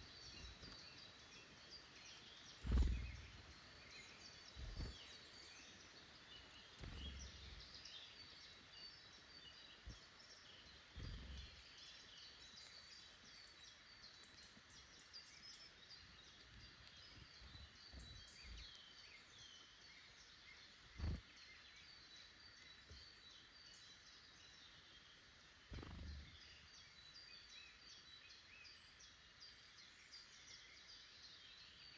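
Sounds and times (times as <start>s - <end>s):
small birds chirping and trilling: 0.0s - 31.9s
soft low thumps: 2.6s - 3.5s, 4.6s - 5.0s, 6.8s - 7.8s, 10.9s - 11.6s.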